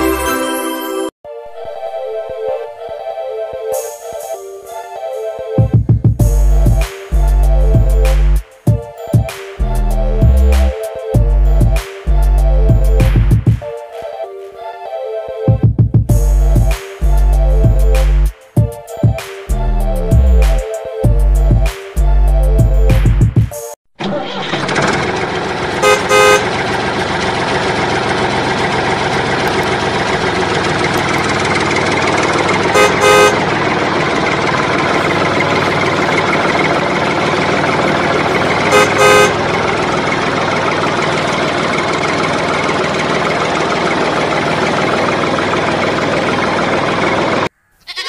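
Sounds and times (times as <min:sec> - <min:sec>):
tractor engine running: 0:24.0 - 0:47.5
double horn toot: 0:25.8 - 0:26.5, 0:32.7 - 0:33.6, 0:38.3 - 0:39.6.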